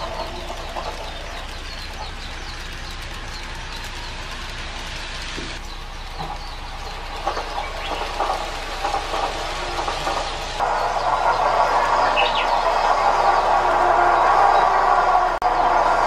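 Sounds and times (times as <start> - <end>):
train wheels clattering over joints: 0.0 - 15.4
birds chirping: 0.0 - 16.0
steady hiss: 0.0 - 16.0.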